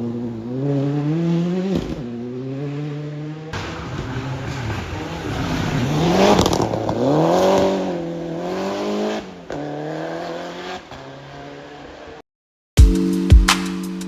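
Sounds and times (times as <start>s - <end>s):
rally car engine accelerating: 0.0s - 12.2s.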